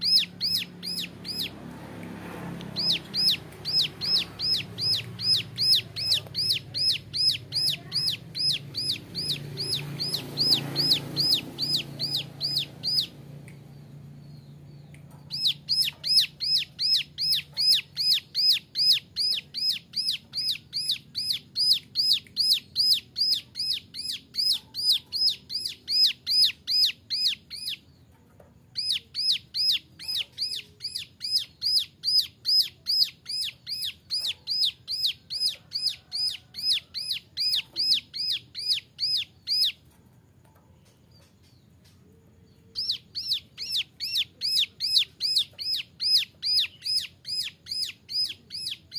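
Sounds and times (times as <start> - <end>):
bird whistling sharp notes: 0.0 - 1.5, 2.8 - 13.2, 42.7 - 48.9.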